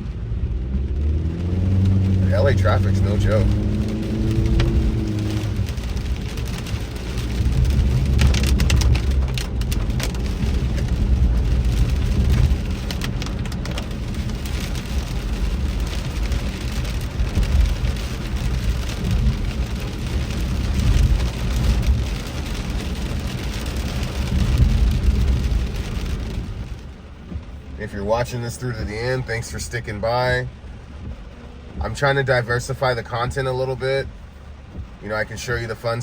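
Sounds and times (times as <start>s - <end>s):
car rumbling on wet road: 0.0s - 36.0s
heavy rain hitting a car: 0.0s - 36.0s
sharp ticks of raindrops: 0.0s - 36.0s.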